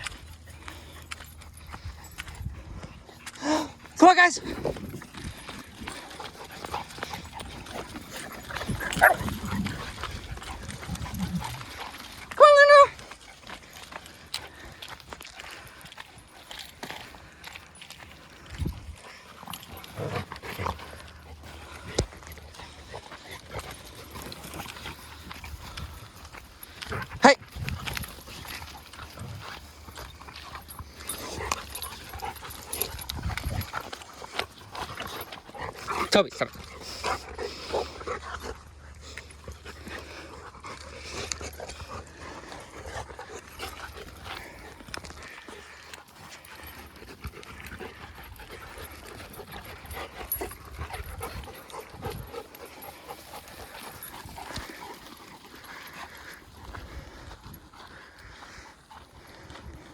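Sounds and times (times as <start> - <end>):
dog panting: 0.0 - 59.9
crunching steps and clicks: 4.5 - 59.9
dogs whining and yipping: 4.6 - 13.6.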